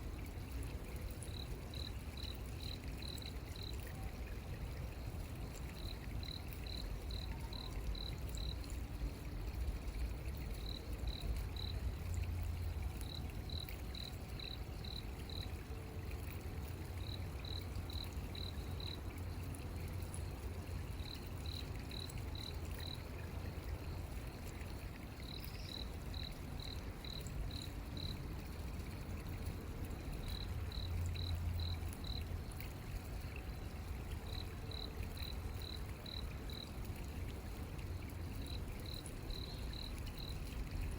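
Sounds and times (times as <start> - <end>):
cricket chirping: 25.2 - 28.2, 30.2 - 32.3, 38.4 - 40.5.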